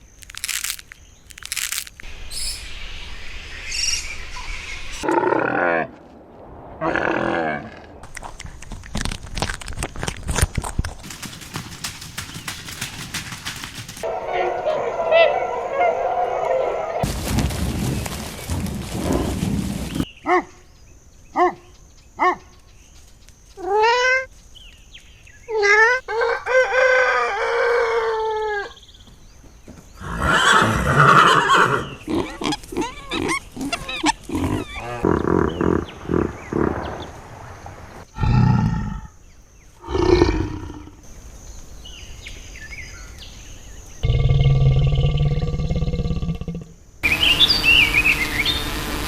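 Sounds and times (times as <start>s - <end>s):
animal calls: 30.0s - 37.2s.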